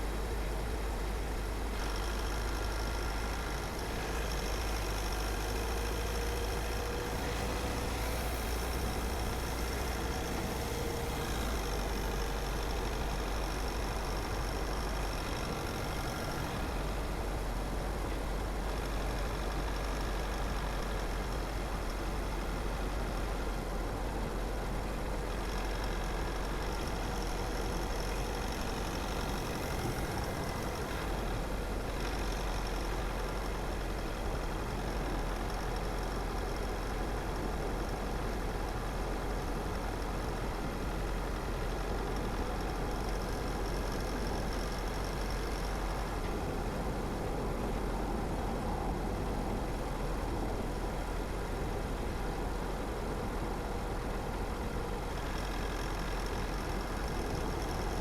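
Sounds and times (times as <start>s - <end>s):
car driving: 4.0s - 18.4s.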